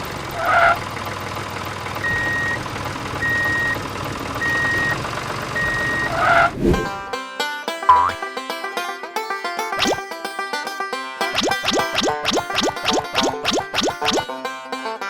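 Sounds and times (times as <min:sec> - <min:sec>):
engine hum: 0:00.0 - 0:07.2
vehicle reversing alarm beeping: 0:02.0 - 0:02.6, 0:03.2 - 0:03.8, 0:04.4 - 0:06.5.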